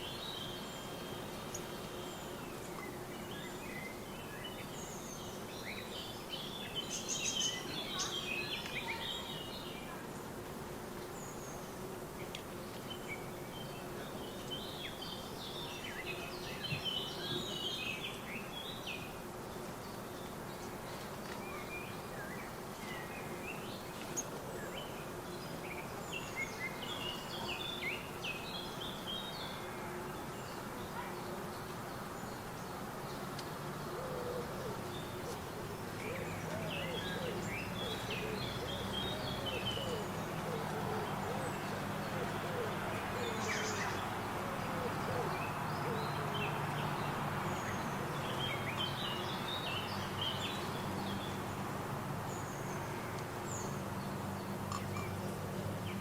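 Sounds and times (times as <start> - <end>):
small songbirds chirping: 0.0 - 10.4, 11.0 - 56.0
faint constant hum: 0.0 - 56.0.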